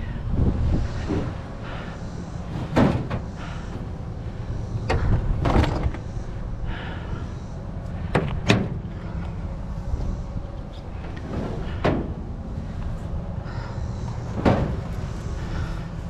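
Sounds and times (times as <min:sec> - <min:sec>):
knocks and thumps in truck bed: 0:02.5 - 0:03.9, 0:04.8 - 0:06.0, 0:08.0 - 0:08.8, 0:11.0 - 0:12.3, 0:14.3 - 0:15.0.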